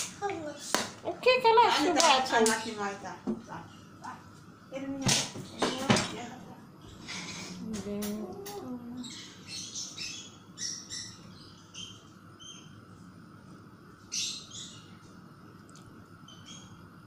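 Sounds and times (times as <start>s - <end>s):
birds chirping: 8.5s - 13.0s, 14.0s - 15.2s, 16.2s - 17.0s.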